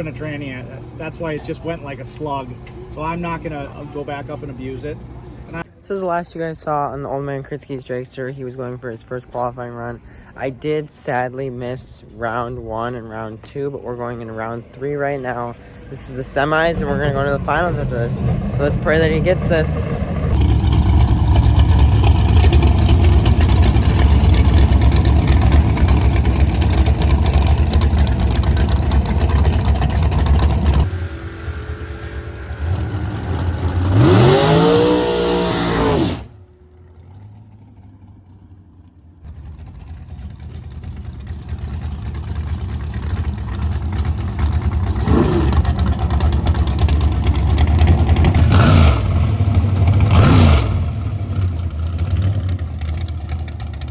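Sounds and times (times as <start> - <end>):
drag racing car engines: 0.0 - 53.9
engine revving: 16.4 - 38.3, 42.0 - 53.9.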